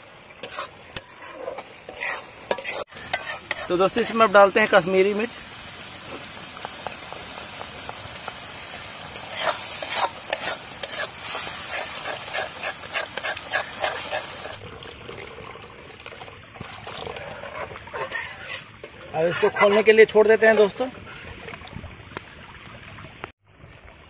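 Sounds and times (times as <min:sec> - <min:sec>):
masala sizzling: 0:00.0 - 0:20.9
metal spatula stirring and scraping: 0:00.4 - 0:04.9, 0:09.2 - 0:14.6, 0:17.1 - 0:20.8
water pouring: 0:00.4 - 0:23.9.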